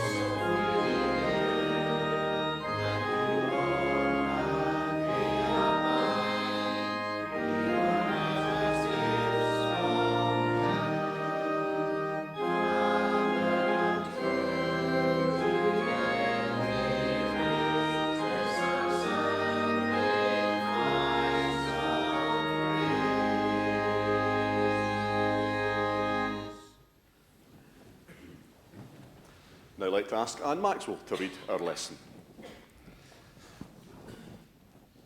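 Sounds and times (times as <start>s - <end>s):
church organ chords: 0.0s - 26.8s.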